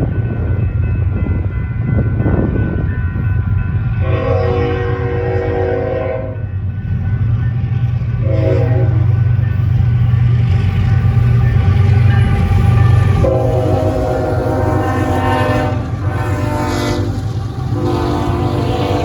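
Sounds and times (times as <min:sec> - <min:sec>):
train rumbling past: 0:00.0 - 0:19.0
locomotive air horn blasts: 0:04.0 - 0:06.4, 0:08.2 - 0:09.1, 0:13.2 - 0:19.0.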